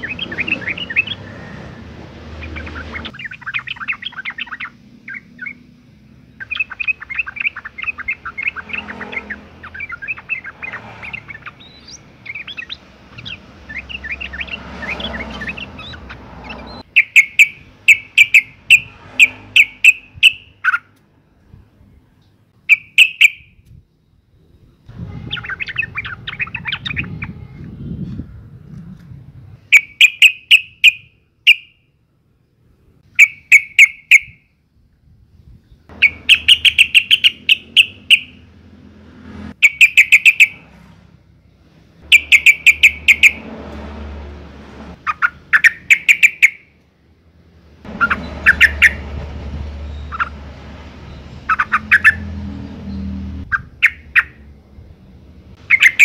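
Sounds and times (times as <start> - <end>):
bird chattering calls: 0.0 - 1.5, 2.3 - 5.7, 6.3 - 20.9, 22.7 - 23.4, 25.2 - 27.4, 33.1 - 34.4, 35.9 - 38.5, 39.6 - 40.7, 42.1 - 43.5, 45.0 - 46.7, 47.9 - 49.1, 49.9 - 50.4, 51.4 - 52.4, 53.4 - 54.5, 55.6 - 56.0.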